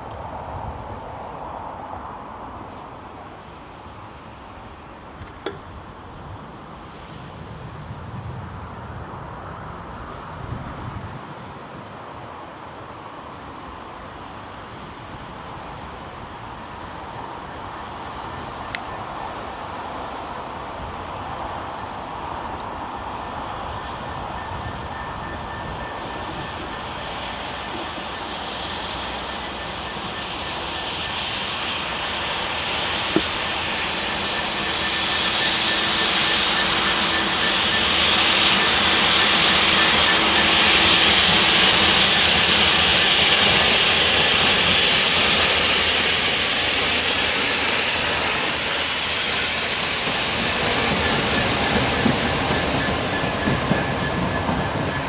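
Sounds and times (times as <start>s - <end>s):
train rumble and rail noise: 0.0s - 55.0s
faint steady high tone: 23.2s - 32.0s.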